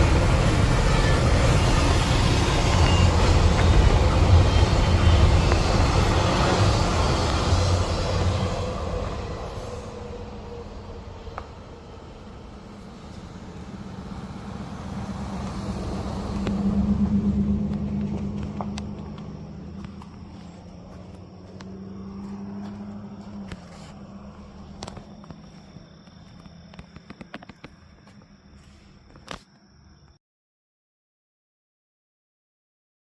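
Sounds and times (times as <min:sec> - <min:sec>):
passing train rumbling: 0:00.0 - 0:29.4
clicks and crackles: 0:24.7 - 0:28.1.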